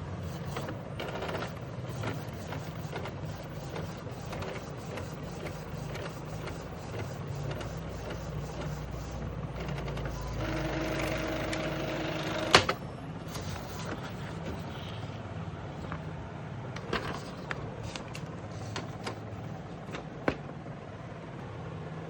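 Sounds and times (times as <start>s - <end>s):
printer motor whine: 0.0s - 15.2s, 16.8s - 21.1s
printer gears ticking: 0.2s - 14.8s.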